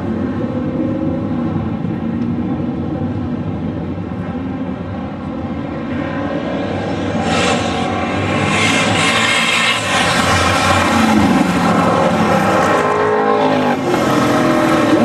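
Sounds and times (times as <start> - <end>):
car engine running steadily: 0.0 - 8.8.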